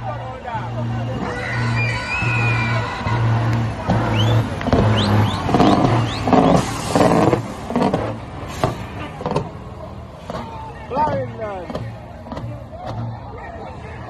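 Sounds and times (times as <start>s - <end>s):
truck engine revving hard: 0.0s - 14.0s
pulsing music beat: 0.5s - 7.9s.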